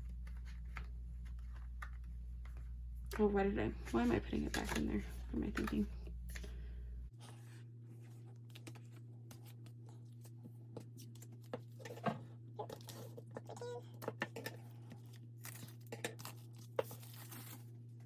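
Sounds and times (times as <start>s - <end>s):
steady low hum: 0.0s - 12.6s
paper packaging rustling: 3.9s - 6.5s, 15.0s - 17.8s.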